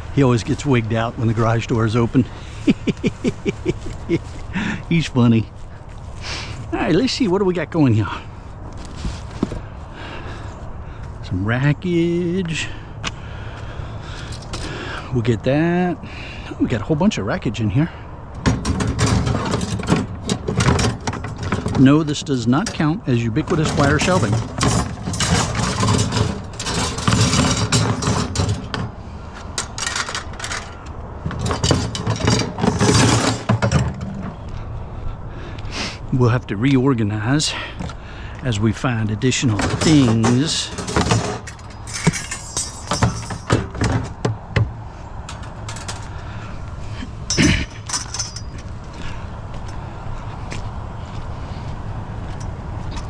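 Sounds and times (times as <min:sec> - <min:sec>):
scrap metal clanking and scraping: 0:18.4 - 0:34.8, 0:39.4 - 0:49.8.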